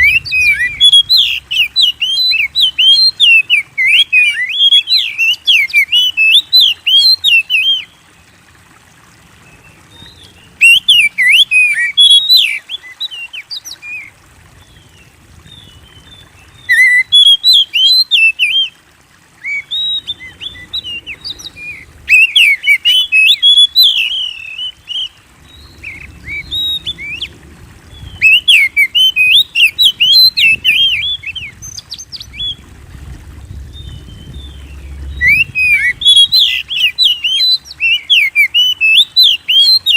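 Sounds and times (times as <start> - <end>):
bird singing whistled notes: 0.0 - 7.9, 19.4 - 27.3, 27.9 - 32.6, 33.5 - 39.9.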